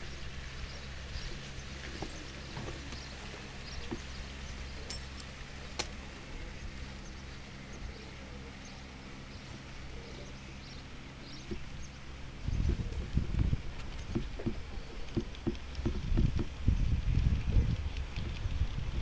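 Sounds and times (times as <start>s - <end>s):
sharp clicks: 13.8s - 16.6s.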